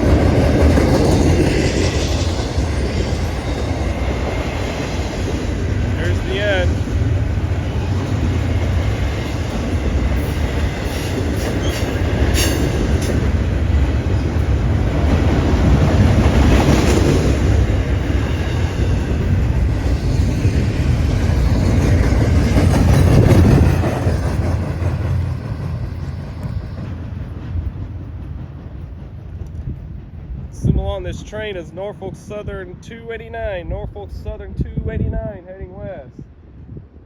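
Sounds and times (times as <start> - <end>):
freight train rumbling past: 0.0 - 37.0.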